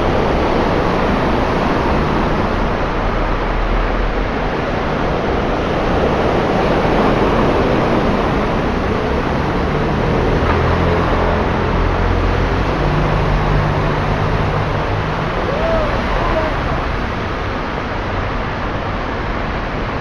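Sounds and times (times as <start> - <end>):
engines rumbling: 0.0 - 20.0.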